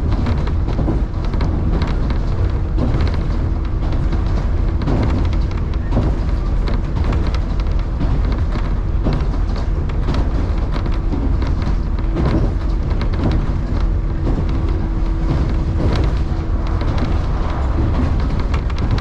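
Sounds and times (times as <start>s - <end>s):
steady hum: 0.0s - 19.0s
train low rumble: 0.0s - 19.0s
wheels clicking over rails: 0.0s - 19.0s.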